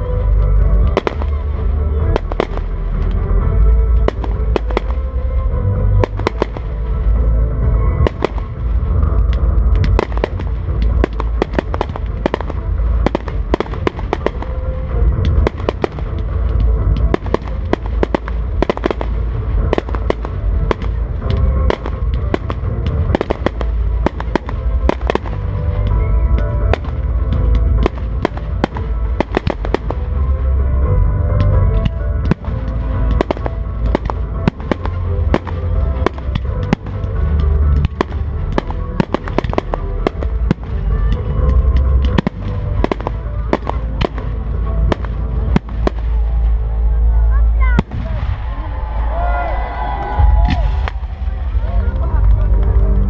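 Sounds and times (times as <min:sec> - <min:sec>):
music with heavy bass: 0:00.0 - 0:53.0
fireworks bangs: 0:00.8 - 0:03.2, 0:06.0 - 0:06.9, 0:08.0 - 0:30.3, 0:31.4 - 0:46.9.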